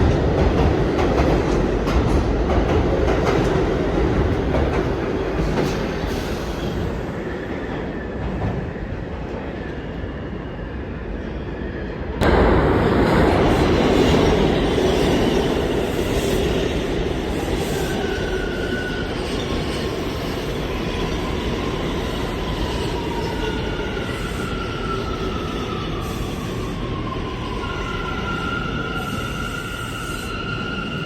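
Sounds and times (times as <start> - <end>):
subway train rumbling on rails: 0.0 - 31.0.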